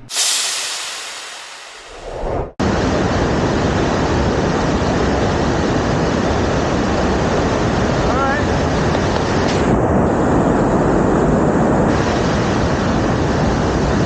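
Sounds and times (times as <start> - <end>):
waterfall rushing: 0.1 - 2.1.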